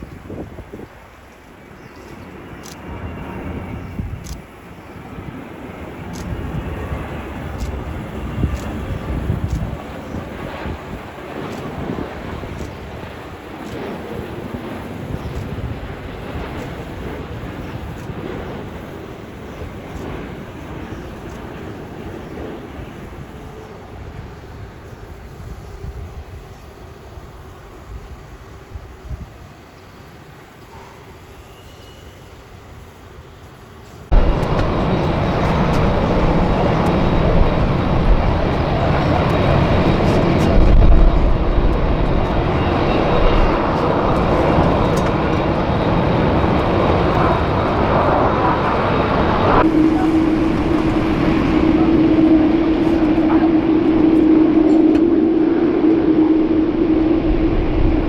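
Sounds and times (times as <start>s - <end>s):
jet engine roar: 0.0s - 29.0s, 34.0s - 58.0s
steady low hum: 34.1s - 58.0s.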